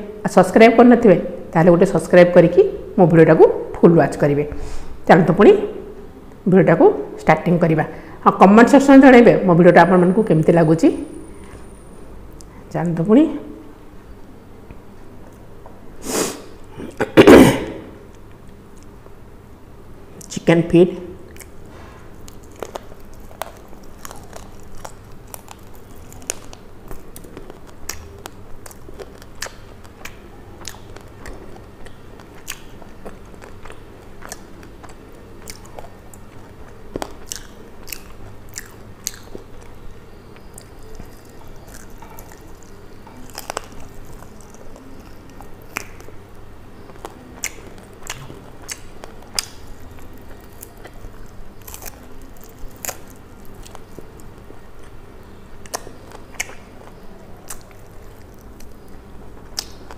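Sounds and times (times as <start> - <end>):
biting and chewing: 21.3 - 59.9
crisp crunches: 21.4 - 31.6, 40.4 - 46.2, 46.8 - 55.0, 55.6 - 59.9.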